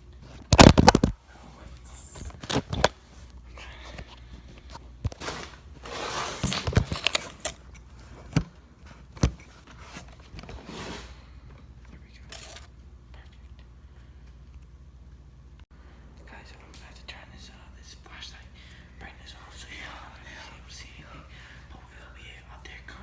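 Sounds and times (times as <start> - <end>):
rustling: 5.1 - 7.5.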